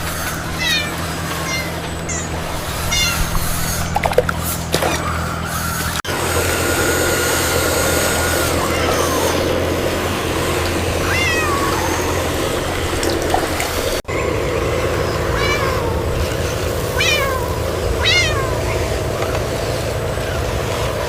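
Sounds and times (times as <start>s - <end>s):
steady low hum: 0.0s - 21.0s
kitten meowing: 0.5s - 2.3s, 2.9s - 3.3s, 11.0s - 12.3s, 15.3s - 16.1s, 16.9s - 18.8s.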